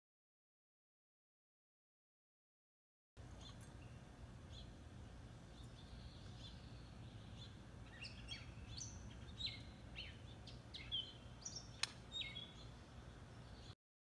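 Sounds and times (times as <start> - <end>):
low outdoor rumble: 3.2 - 13.8
small birds chirping: 3.2 - 13.8.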